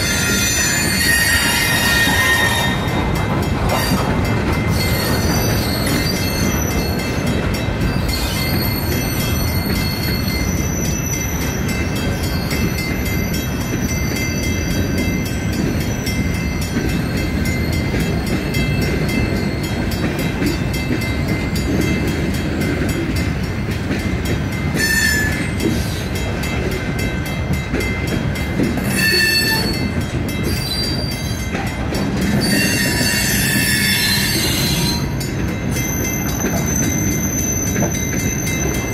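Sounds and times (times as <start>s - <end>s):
high-pitched wheel squeal: 0.0s - 3.0s, 24.8s - 25.4s, 28.9s - 29.9s, 32.4s - 35.2s
train wheels rumbling on rail: 0.0s - 38.9s.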